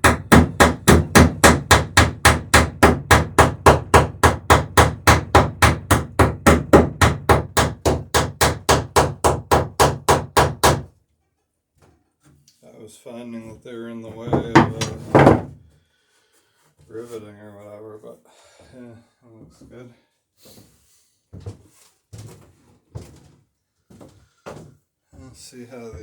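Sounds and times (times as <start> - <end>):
hammer striking rivet: 0.0 - 10.8, 14.3 - 15.5.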